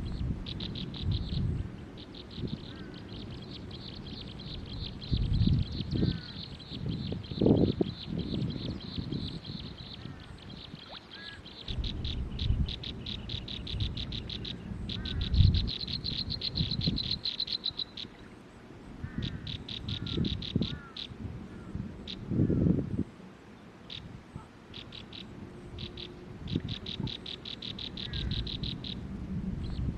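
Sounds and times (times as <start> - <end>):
low uneven rumble: 20.8 - 29.9.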